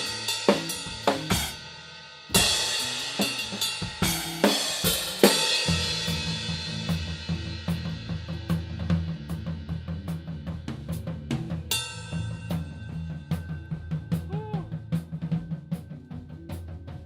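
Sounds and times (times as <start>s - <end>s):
rock band playing live: 0.0s - 1.6s, 2.3s - 17.0s
drum kit beat: 0.0s - 17.0s
low bass line: 5.7s - 17.0s.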